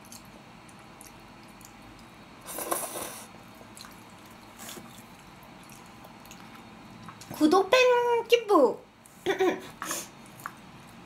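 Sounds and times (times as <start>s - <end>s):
chewing and mouth sounds: 0.0s - 7.4s, 10.2s - 11.0s.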